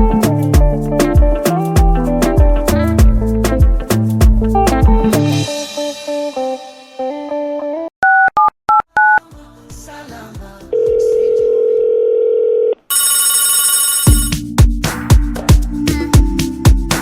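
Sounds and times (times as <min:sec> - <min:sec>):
phone keypad tones: 0:10.8 - 0:14.3
phone ringing: 0:10.8 - 0:14.4
steady phone tone: 0:10.8 - 0:14.4.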